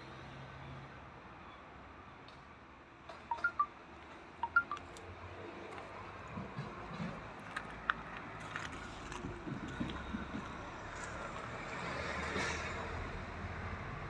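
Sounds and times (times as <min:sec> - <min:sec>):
low traffic rumble: 0:04.2 - 0:14.0.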